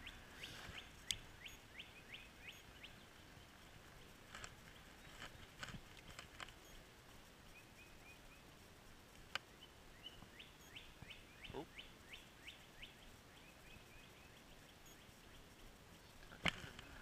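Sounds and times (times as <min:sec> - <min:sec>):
high bird chirps: 0:00.0 - 0:03.0.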